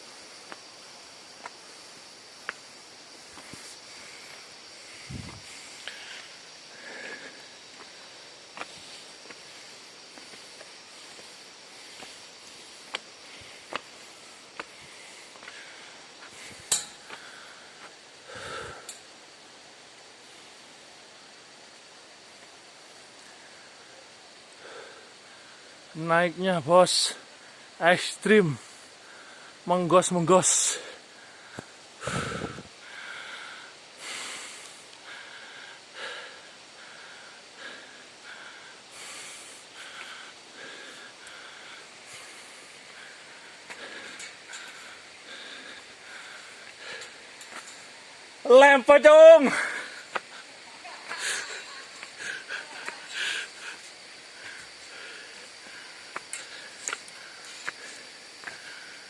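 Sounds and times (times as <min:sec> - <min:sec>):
person panting hard: 0:31.0 - 0:47.3, 0:51.1 - 0:59.0.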